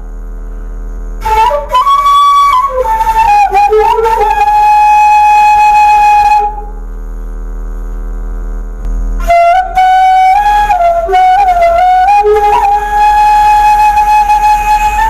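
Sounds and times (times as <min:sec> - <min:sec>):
quiet low hum: 0:00.0 - 0:15.0
bamboo flute playing: 0:01.2 - 0:06.8, 0:09.2 - 0:15.0.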